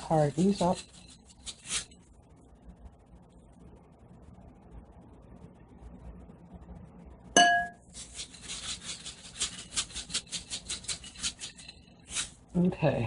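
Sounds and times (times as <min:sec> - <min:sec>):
candy sprinkles rattling: 0:00.0 - 0:02.0, 0:07.8 - 0:12.4
sharp ringing clink: 0:07.4 - 0:07.8.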